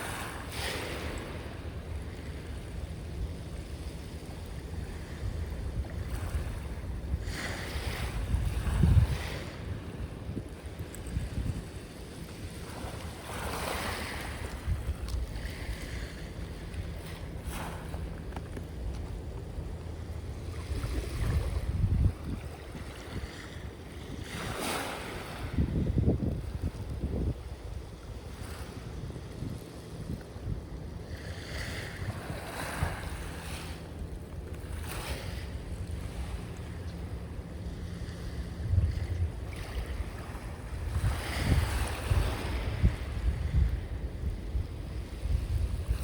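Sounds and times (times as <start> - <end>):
sea waves washing onto shore: 0.0 - 25.8
wind buffeting microphone: 0.9 - 46.0.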